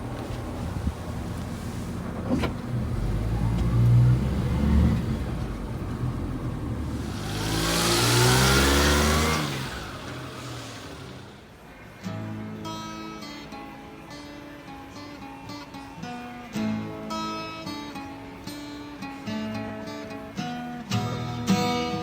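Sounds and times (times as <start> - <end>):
small engine accelerating: 0.0 - 11.6
road and wind noise: 0.0 - 11.8
guitar music: 0.0 - 22.0.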